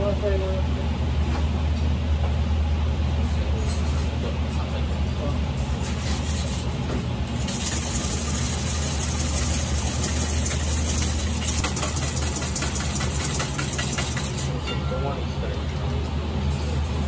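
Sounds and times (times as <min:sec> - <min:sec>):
kitchen equipment hum: 0:00.0 - 0:17.0
clinks of metal bowls: 0:11.6 - 0:15.2.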